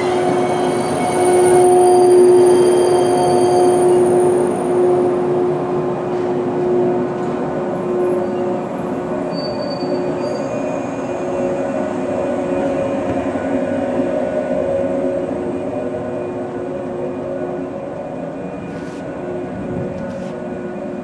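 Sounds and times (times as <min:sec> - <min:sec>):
wheels and brakes squealing: 0:00.0 - 0:05.0, 0:08.0 - 0:11.9
electric train rumbling: 0:00.0 - 0:21.0
short high squeal: 0:09.3 - 0:10.8.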